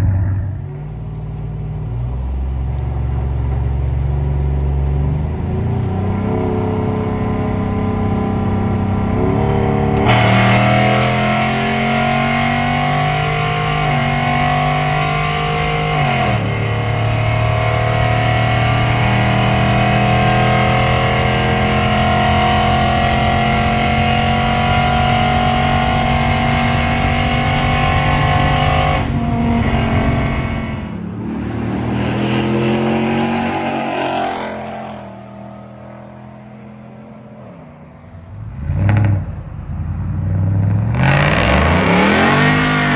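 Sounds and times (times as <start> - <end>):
truck exhaust under hard acceleration: 0.0 - 42.9.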